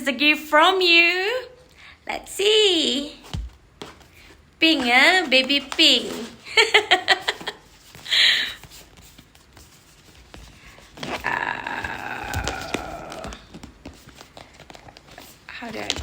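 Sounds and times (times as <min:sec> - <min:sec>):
box rustling: 0:03.4 - 0:11.3, 0:12.2 - 0:16.0.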